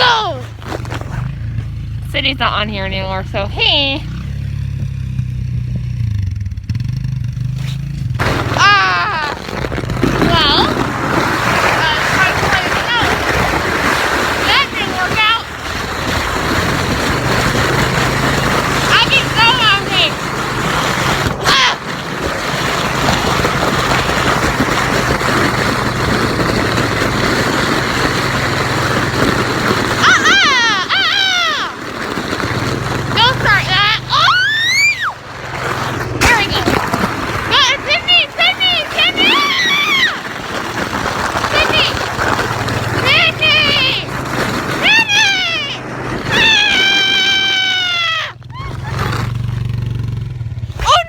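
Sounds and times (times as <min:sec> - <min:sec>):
high-pitched shout: 0:00.0 - 0:00.5, 0:08.6 - 0:09.4, 0:30.0 - 0:31.8, 0:33.2 - 0:35.2, 0:37.5 - 0:40.2, 0:43.0 - 0:44.1, 0:44.8 - 0:48.9, 0:50.8 - 0:51.0
atv engine running: 0:00.0 - 0:51.0
high-pitched yell: 0:30.0 - 0:31.8, 0:33.2 - 0:35.2, 0:37.5 - 0:40.2, 0:44.8 - 0:48.9, 0:50.8 - 0:51.0.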